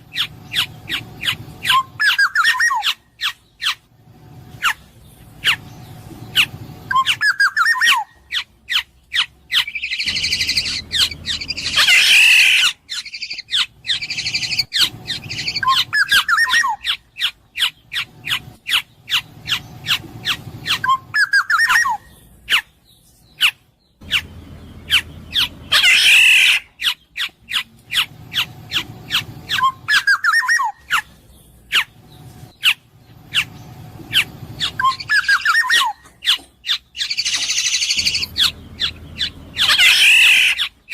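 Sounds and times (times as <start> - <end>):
harsh scratchy bird call: 0.1 - 3.8, 6.3 - 22.7, 24.9 - 31.1, 34.1 - 40.9
bird whistling fluty phrases: 6.9 - 8.1, 29.5 - 30.8, 34.7 - 36.0.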